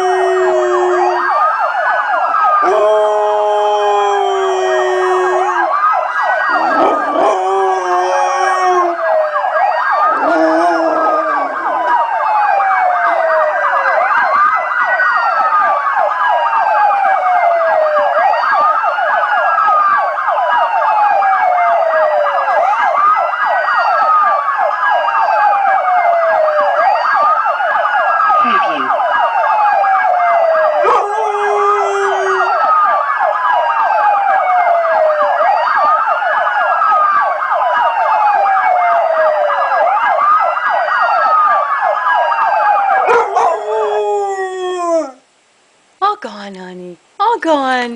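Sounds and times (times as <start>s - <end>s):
dog howling: 0.0s - 1.3s, 2.6s - 5.7s, 6.5s - 9.2s, 10.1s - 12.0s, 22.3s - 22.9s, 30.8s - 32.7s, 42.9s - 45.2s
siren wailing: 0.0s - 45.2s.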